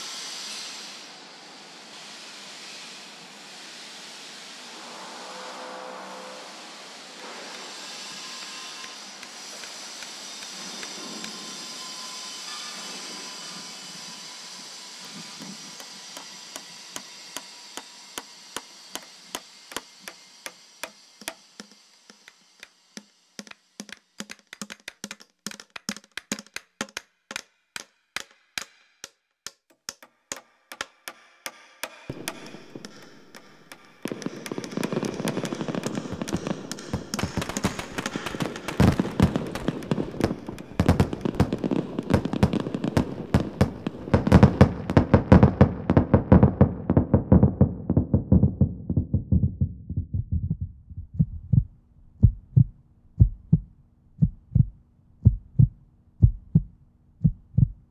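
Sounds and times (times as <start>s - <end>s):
steady hiss: 0.0s - 27.0s, 31.8s - 46.1s
sharp clicks: 21.2s - 45.2s
loud dense crackling: 32.1s - 48.2s.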